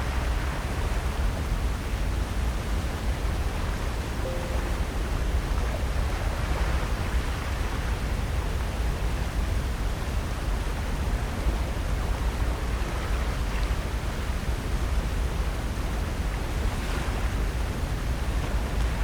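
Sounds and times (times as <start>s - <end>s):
wind rumble on microphone: 0.0s - 19.0s
ocean surf: 4.2s - 8.2s.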